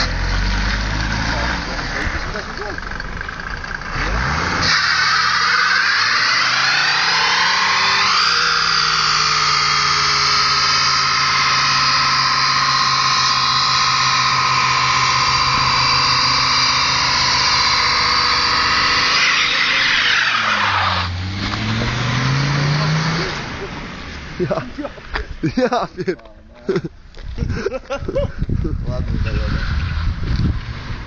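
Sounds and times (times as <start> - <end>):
diesel engine revving: 0.0 - 25.0, 29.1 - 31.0
tyres squealing: 4.6 - 21.2.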